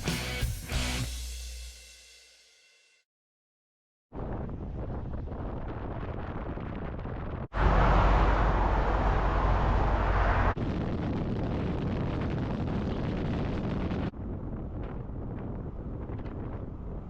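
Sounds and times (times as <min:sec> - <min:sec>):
deep rumble: 0:04.2 - 0:17.0
vehicle road and wind noise: 0:04.6 - 0:17.0.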